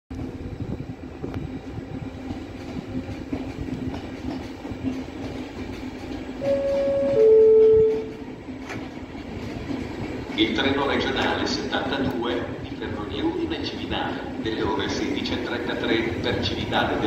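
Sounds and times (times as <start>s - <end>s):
train rumbling along track: 0.1s - 17.0s
loud steady tone: 6.4s - 8.2s.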